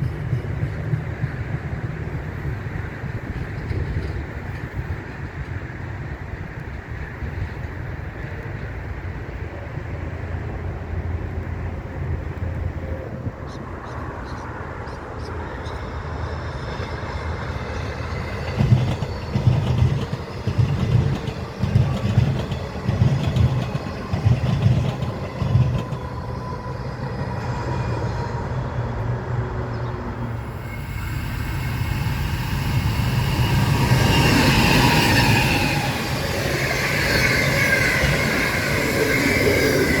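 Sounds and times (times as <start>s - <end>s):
train wheels rumbling: 0.0s - 9.1s, 14.5s - 40.0s
high gliding squeal: 30.2s - 40.0s.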